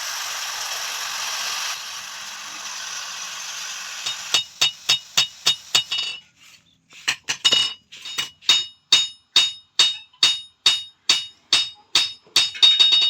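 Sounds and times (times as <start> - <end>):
hammer striking metal on anvil: 4.0 - 6.2, 7.4 - 13.0.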